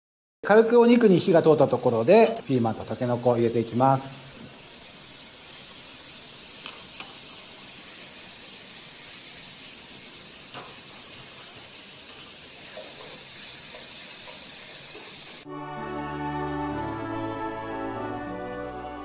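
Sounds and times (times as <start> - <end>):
food sizzling in frying pan: 0.5 - 15.5
utensils clicking against pan: 6.6 - 7.2, 10.4 - 15.4.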